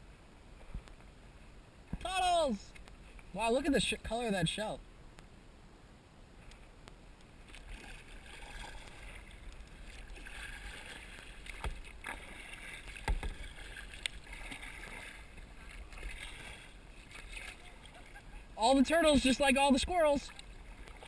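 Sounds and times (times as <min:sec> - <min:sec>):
water splashing and dripping: 0:07.4 - 0:18.3, 0:19.2 - 0:21.0
paddle knocking on boat: 0:11.4 - 0:13.8.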